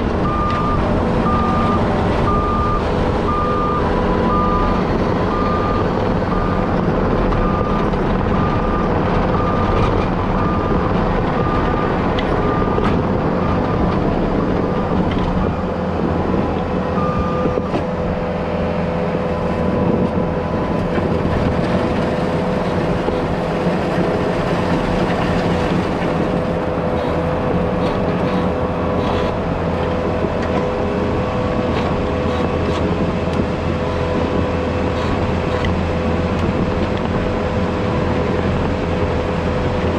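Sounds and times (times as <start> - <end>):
diesel engine running: 0.0 - 39.9
backup alarm beeping: 0.2 - 6.6.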